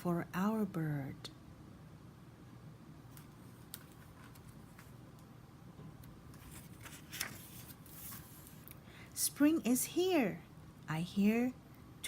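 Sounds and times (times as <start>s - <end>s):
paper page turning: 3.1s - 5.0s, 6.3s - 8.8s.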